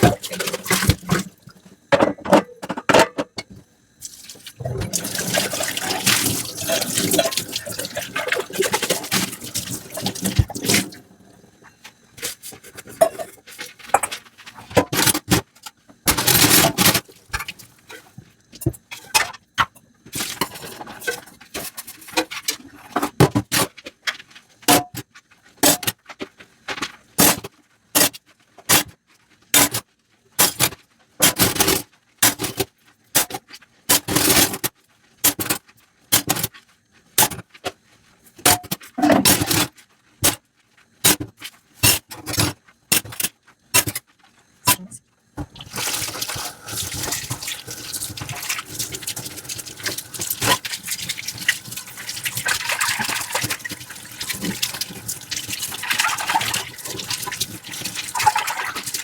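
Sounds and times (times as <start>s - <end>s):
sponge scrubbing dishes: 0.0s - 15.4s, 45.4s - 59.0s
running water: 4.0s - 11.8s, 45.4s - 59.0s.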